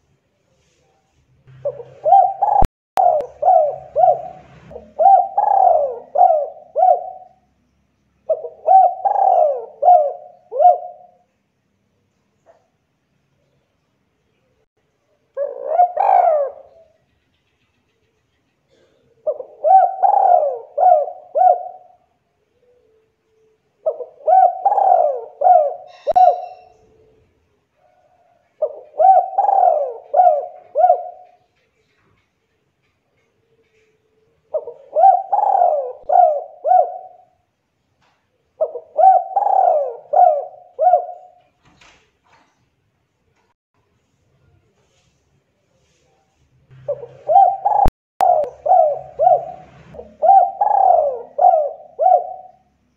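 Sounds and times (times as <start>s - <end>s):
dove cooing: 1.5s - 7.5s, 8.3s - 11.2s, 15.4s - 17.0s, 18.7s - 23.0s, 23.8s - 31.9s, 33.5s - 37.4s, 38.6s - 41.5s, 46.8s - 52.8s.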